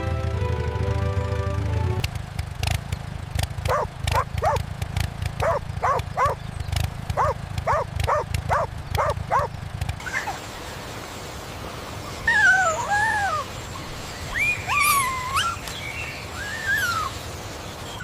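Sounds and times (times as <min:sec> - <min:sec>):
music: 0:00.0 - 0:02.0
animal yelping: 0:03.7 - 0:04.6, 0:05.4 - 0:06.4, 0:07.2 - 0:09.5, 0:14.3 - 0:15.7, 0:16.3 - 0:17.2.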